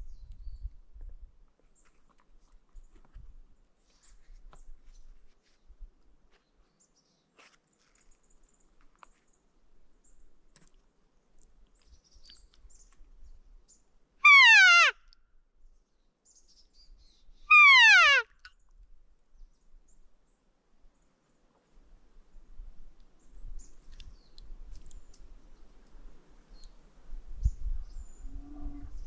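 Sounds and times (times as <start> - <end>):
elk cow calls: 14.2 - 15.0, 17.5 - 18.2.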